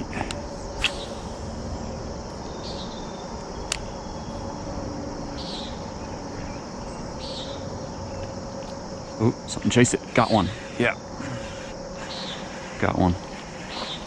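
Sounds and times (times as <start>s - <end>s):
high insect chirps: 0.0s - 14.0s
steady background hum: 0.0s - 14.0s
sharp click: 0.8s - 1.5s.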